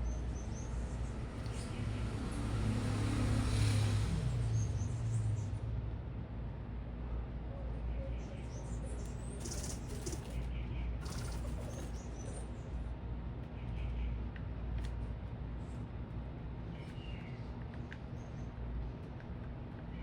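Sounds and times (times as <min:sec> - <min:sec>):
low city rumble: 0:00.0 - 0:20.0
high bird chirps: 0:09.4 - 0:10.4, 0:11.0 - 0:12.0
bird wings fluttering: 0:09.4 - 0:12.0.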